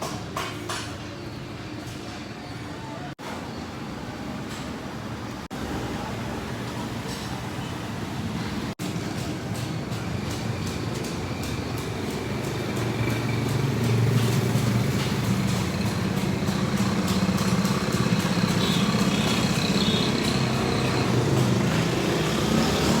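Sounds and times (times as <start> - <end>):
washing machine motor hum: 8.0 - 23.0.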